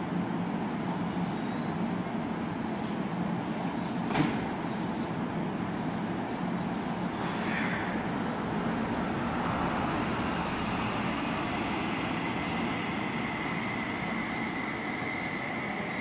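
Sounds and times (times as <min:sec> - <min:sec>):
electric train running noise: 0:05.2 - 0:16.0
high whine: 0:07.2 - 0:16.0.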